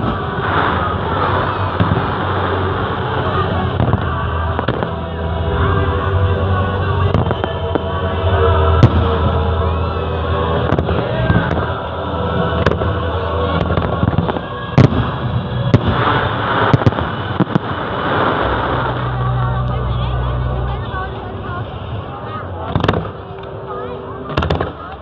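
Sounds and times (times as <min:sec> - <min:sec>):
fireworks bangs: 0:00.0 - 0:05.0, 0:10.4 - 0:11.9, 0:12.6 - 0:19.4, 0:22.6 - 0:23.3, 0:24.3 - 0:24.9
crowd voices: 0:00.0 - 0:25.0
music: 0:00.0 - 0:25.0.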